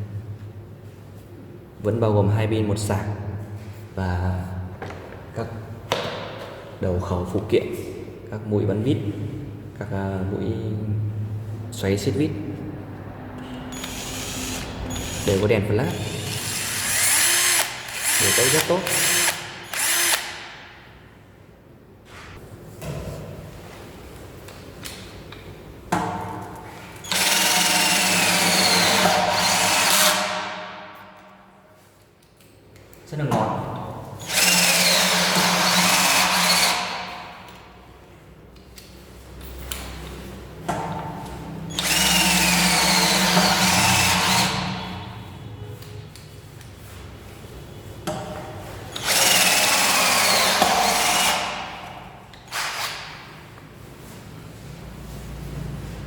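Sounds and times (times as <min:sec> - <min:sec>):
cordless drill motor whine: 0:13.7 - 0:15.3, 0:16.0 - 0:20.3, 0:41.8 - 0:44.5
cordless drill whining: 0:13.7 - 0:20.5, 0:27.1 - 0:30.3, 0:34.2 - 0:37.0, 0:41.7 - 0:44.6, 0:49.0 - 0:51.6.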